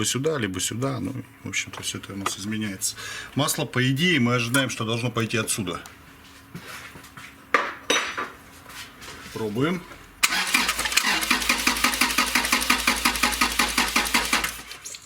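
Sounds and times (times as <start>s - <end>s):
engine cranking on starter: 10.2s - 15.0s.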